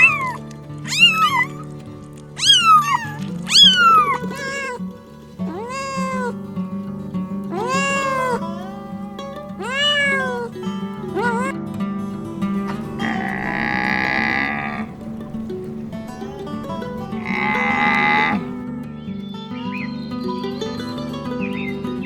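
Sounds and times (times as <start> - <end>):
cat meowing: 0.0 - 1.7, 2.4 - 6.4, 7.5 - 11.6, 12.8 - 18.6
background music: 0.0 - 22.0.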